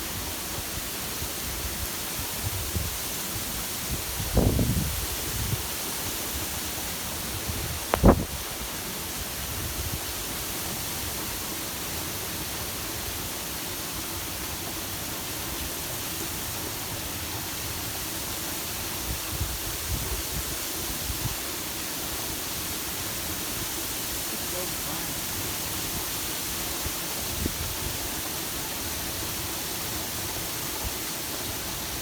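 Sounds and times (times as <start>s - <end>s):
wind and rain hiss: 0.0s - 32.0s
wind buffeting microphone: 4.0s - 5.7s, 7.5s - 8.5s.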